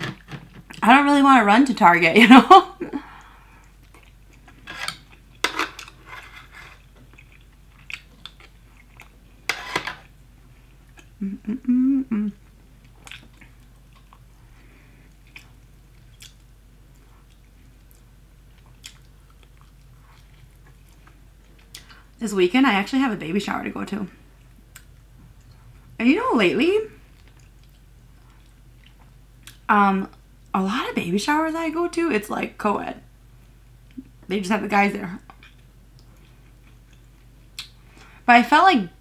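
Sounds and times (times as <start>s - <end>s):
person humming: 11.2s - 12.4s.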